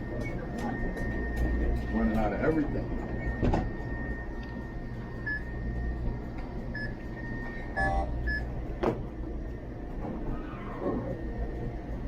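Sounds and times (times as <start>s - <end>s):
steady low hum: 0.0s - 12.0s
short electronic beeps: 6.8s - 8.5s.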